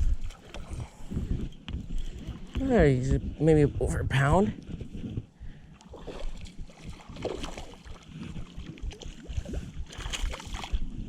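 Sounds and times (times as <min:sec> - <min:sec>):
river water sloshing and gurgling: 0:00.0 - 0:01.3, 0:05.7 - 0:11.0
wind rumbling on microphone: 0:00.0 - 0:11.0.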